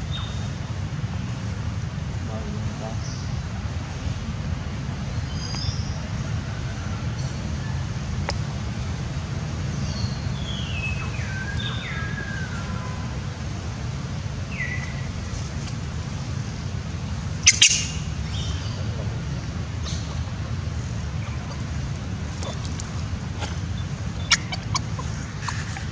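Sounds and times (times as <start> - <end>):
birds chirping: 2.2 - 3.6, 5.0 - 25.9
steady low rumble: 10.9 - 25.9.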